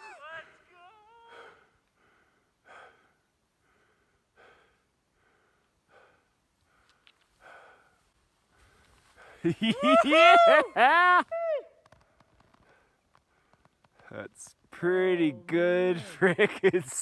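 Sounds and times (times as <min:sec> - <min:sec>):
faint heavy breathing: 0:01.3 - 0:09.5.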